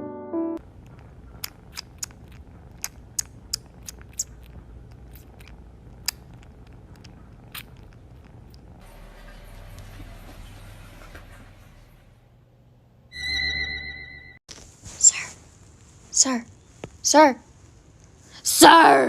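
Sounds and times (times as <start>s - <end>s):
cat chewing crunchy food: 0.6s - 8.8s.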